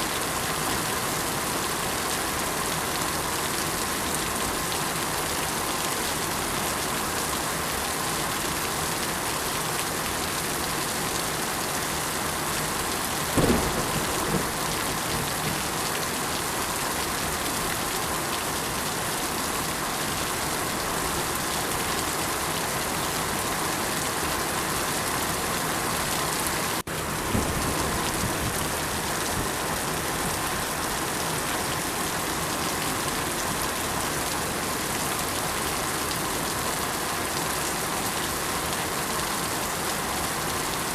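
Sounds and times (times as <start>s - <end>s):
steady rain: 0.0s - 40.9s
low rumbles of thunder: 13.3s - 15.7s, 27.2s - 28.8s.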